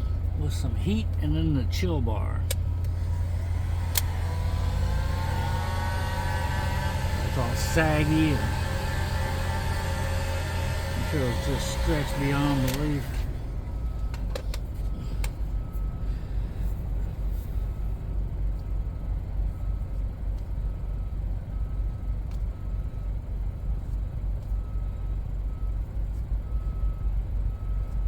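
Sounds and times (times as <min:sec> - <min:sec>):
faint high pulsing tone: 0:02.8 - 0:14.2
heat gun blowing: 0:03.0 - 0:13.3.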